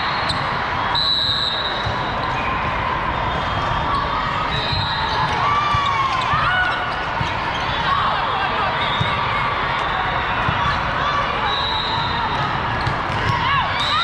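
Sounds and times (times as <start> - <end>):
chatter in a large hall: 0.0 - 14.0
volleyballs hit and bouncing: 12.2 - 13.8.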